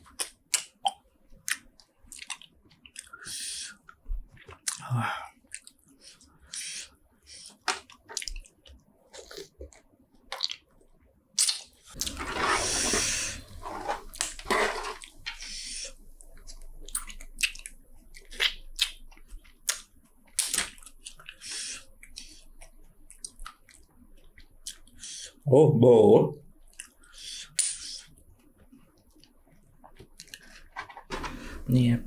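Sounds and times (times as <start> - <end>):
wet chewing and crunching: 0.0 - 3.3, 4.3 - 4.8, 5.4 - 6.6, 7.4 - 12.4, 16.2 - 25.0, 26.7 - 30.6.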